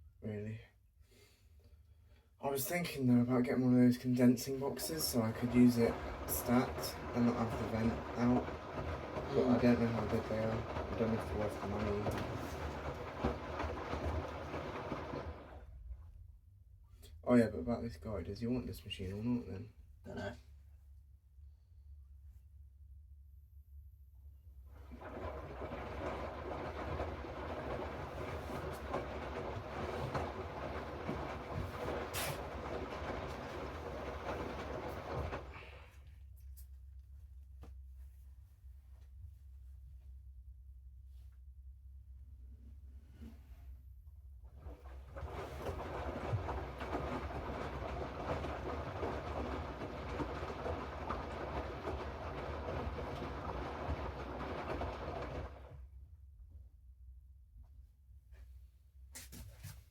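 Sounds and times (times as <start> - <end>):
washing machine drum rumbling: 3.4 - 15.7, 24.8 - 35.9, 44.5 - 55.8.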